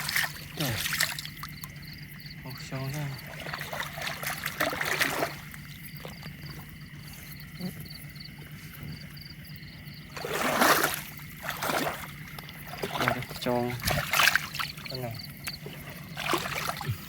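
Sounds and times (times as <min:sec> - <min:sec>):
person wading through water: 0:00.0 - 0:02.2, 0:03.1 - 0:09.1, 0:10.1 - 0:17.0.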